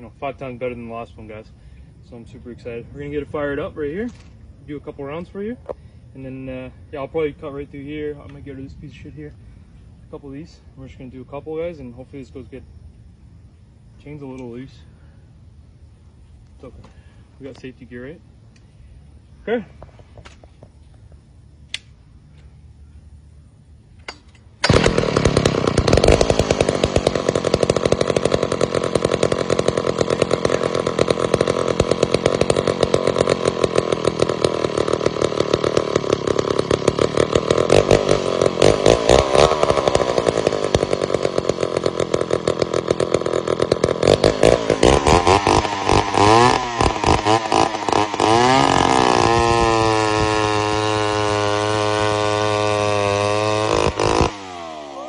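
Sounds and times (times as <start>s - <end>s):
chainsaw running hard: 24.6s - 55.0s.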